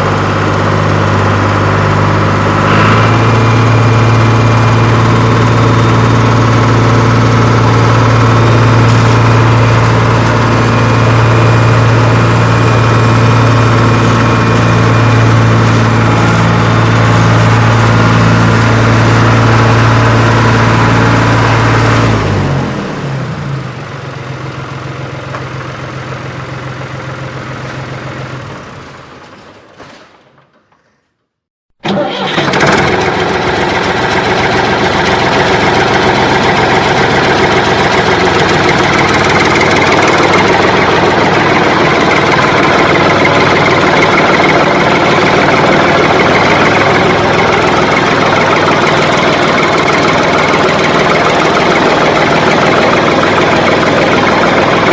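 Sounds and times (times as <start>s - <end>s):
tractor engine running: 0.0s - 29.7s, 31.8s - 54.9s.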